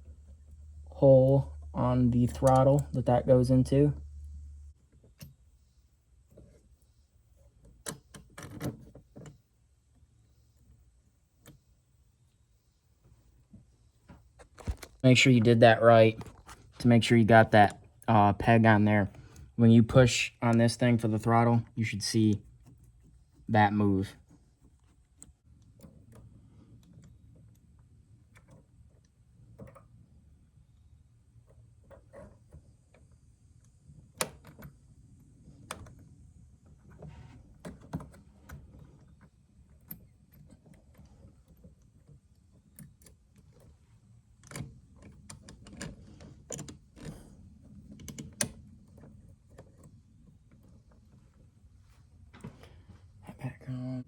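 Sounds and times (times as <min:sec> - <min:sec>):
low room hum: 0:00.0 - 0:54.0
small clicks and taps of parts: 0:02.3 - 0:03.0, 0:04.9 - 0:05.4, 0:07.3 - 0:09.5, 0:11.4 - 0:11.8, 0:24.2 - 0:30.3, 0:31.4 - 0:51.5.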